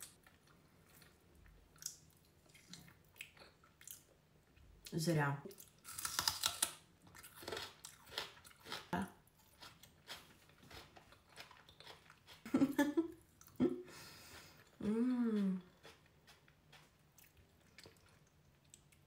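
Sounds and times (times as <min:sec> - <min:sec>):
crunching and chewing: 0:05.5 - 0:13.6, 0:15.6 - 0:19.0
person humming: 0:14.8 - 0:15.7.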